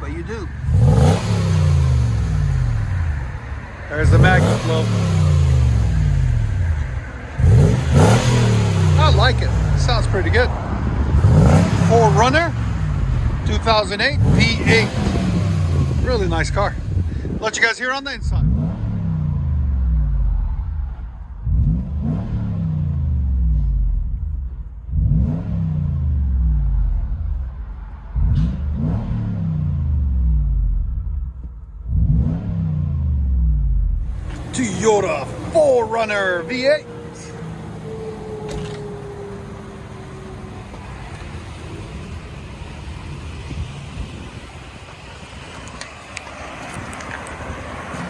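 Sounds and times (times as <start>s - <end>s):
car engine revving: 0.0s - 48.0s
road noise: 0.0s - 48.0s.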